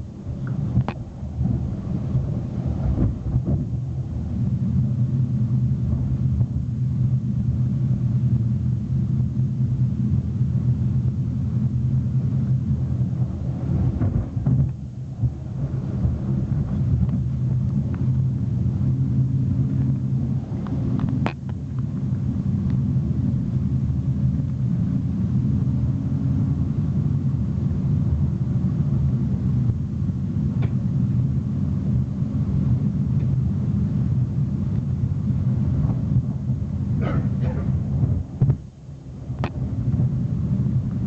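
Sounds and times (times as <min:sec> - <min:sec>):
train wheels rumbling on rails: 0:12.8 - 0:22.6, 0:34.6 - 0:38.7
sharp click in train carriage: 0:30.6 - 0:30.8.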